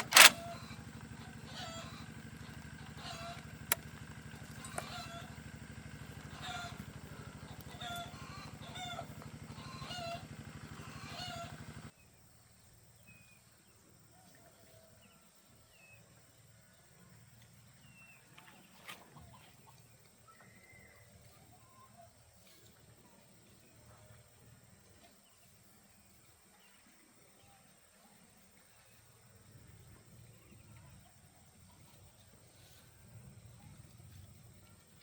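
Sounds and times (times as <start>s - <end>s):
fowl calling: 0.0s - 11.9s
tractor engine running: 0.0s - 11.9s.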